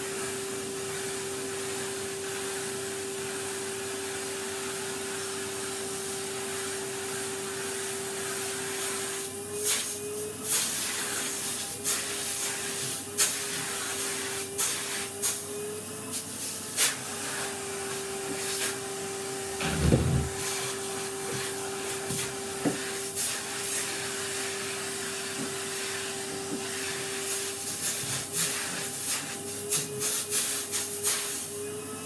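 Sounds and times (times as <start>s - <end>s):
vacuum cleaner running: 0.0s - 32.0s
low thump: 19.6s - 20.4s.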